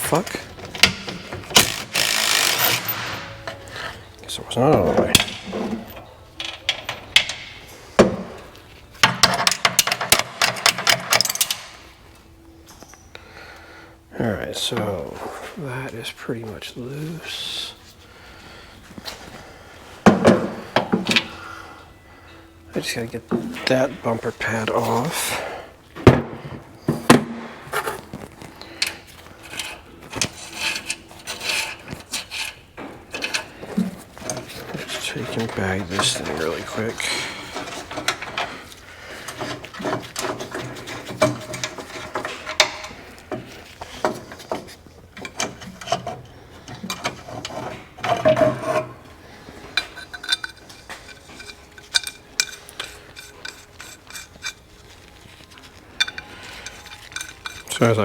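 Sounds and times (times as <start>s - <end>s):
hand tools knocking on metal: 4.6s - 8.4s, 32.2s - 38.6s, 39.2s - 54.6s
scraping and rubbing: 27.4s - 58.0s.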